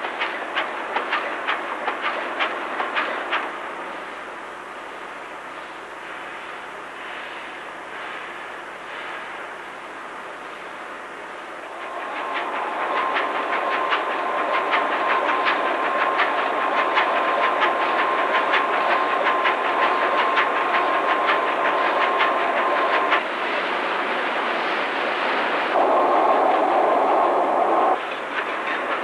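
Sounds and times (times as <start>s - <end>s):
engine whine: 25.7s - 28.0s.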